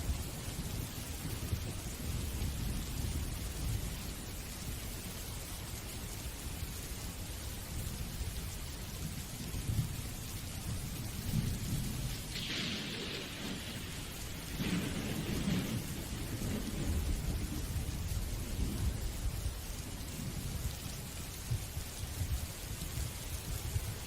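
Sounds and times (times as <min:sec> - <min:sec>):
rain falling: 0:00.0 - 0:24.0
low rolling rumble: 0:10.8 - 0:22.4.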